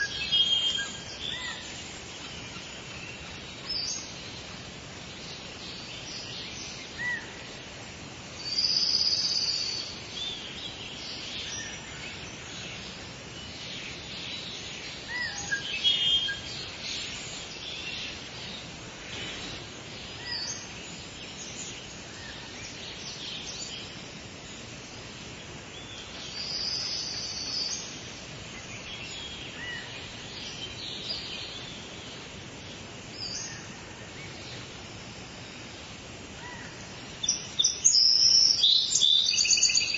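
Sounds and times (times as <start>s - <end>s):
birds singing and chirping: 0.0s - 39.9s
steady background hiss: 0.0s - 39.9s.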